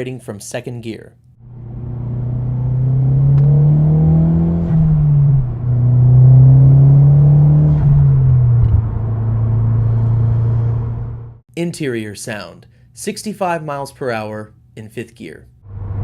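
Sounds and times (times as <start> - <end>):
turbocharged car engine accelerating: 1.4 - 11.4, 15.6 - 16.0.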